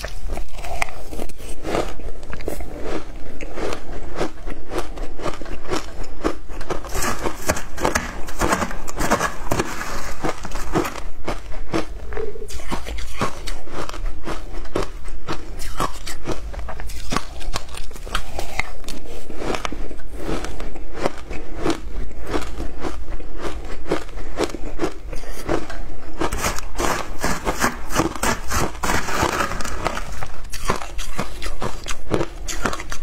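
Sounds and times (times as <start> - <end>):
crunching shaved ice: 0.0 - 11.9, 12.5 - 33.0
metal spoon scraping ice: 6.8 - 11.0, 26.2 - 33.0.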